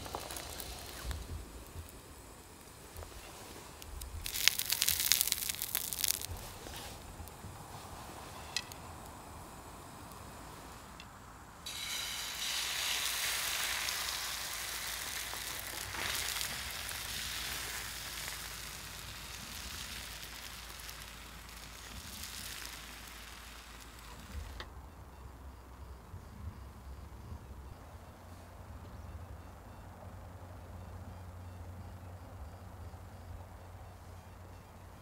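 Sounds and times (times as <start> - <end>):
egg sizzling in a frying pan: 0.0 - 10.7, 11.6 - 24.6.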